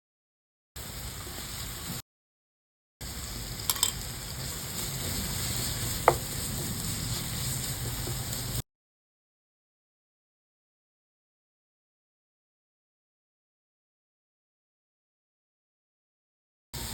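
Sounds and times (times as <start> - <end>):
chicken sizzling in a pan: 0.8 - 2.0, 3.0 - 8.6
utensil knocking against pan: 6.0 - 6.4.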